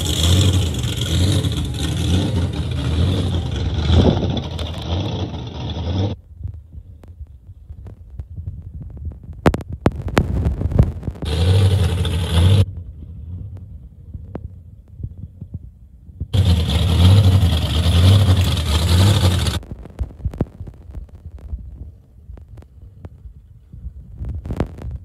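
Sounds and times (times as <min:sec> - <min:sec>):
car engines throbbing: 0:00.0 - 0:06.2, 0:10.2 - 0:14.6, 0:16.2 - 0:20.8
sharp clicks or pops: 0:09.0 - 0:11.3, 0:19.6 - 0:21.7, 0:24.3 - 0:25.0.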